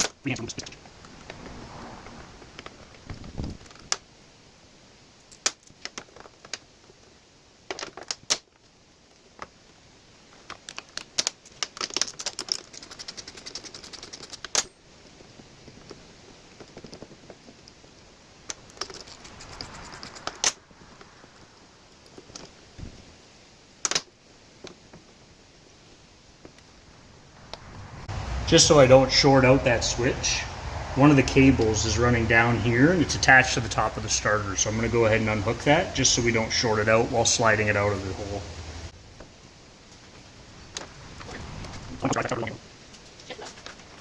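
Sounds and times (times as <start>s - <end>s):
rapid ratchet clicking: 12.1s - 14.6s, 18.7s - 20.6s.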